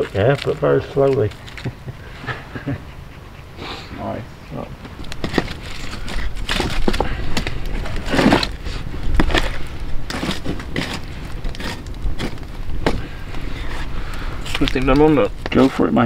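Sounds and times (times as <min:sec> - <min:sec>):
wood cracking and knocking: 0:04.9 - 0:15.7.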